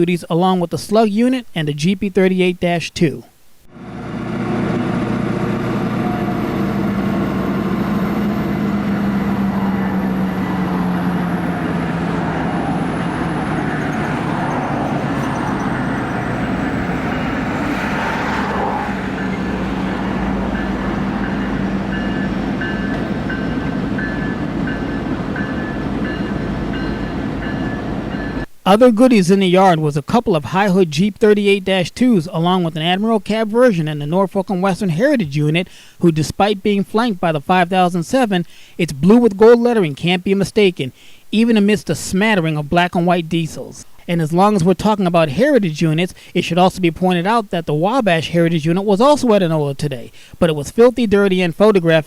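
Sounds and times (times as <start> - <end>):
diesel locomotive engine hum: 3.7 - 28.6.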